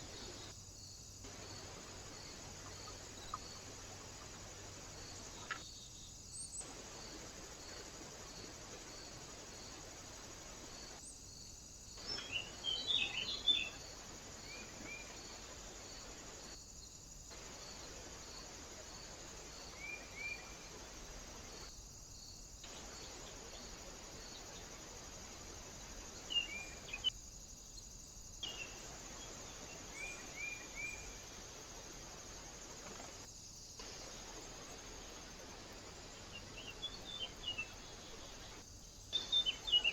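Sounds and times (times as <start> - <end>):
microphone hiss: 0.0 - 39.9
small birds chirping: 1.2 - 7.1, 10.8 - 18.0, 22.6 - 39.9.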